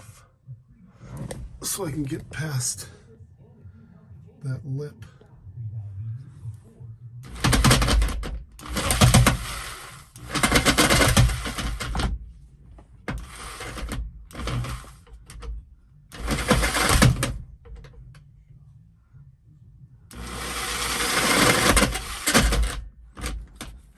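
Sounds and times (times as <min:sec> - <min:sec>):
jigsaw cutting: 0:07.3 - 0:12.1, 0:13.1 - 0:15.0, 0:16.2 - 0:17.4, 0:20.1 - 0:23.7.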